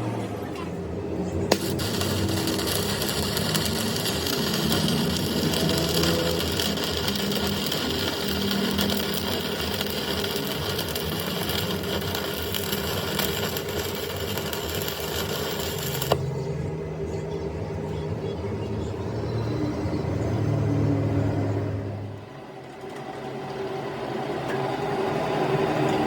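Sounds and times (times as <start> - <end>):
hissing machine noise: 1.3 - 16.4
low hum: 1.3 - 17.0.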